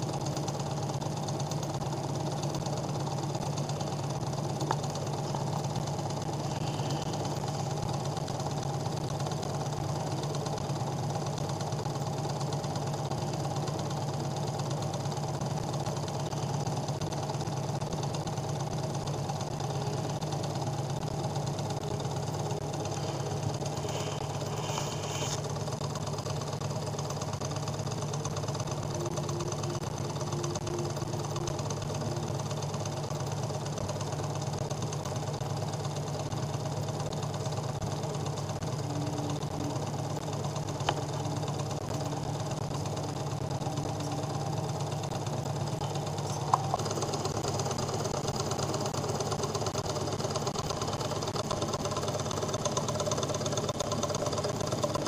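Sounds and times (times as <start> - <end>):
steady low hum: 0.0 - 12.1, 12.8 - 36.4
engine mechanical clatter: 0.0 - 55.0.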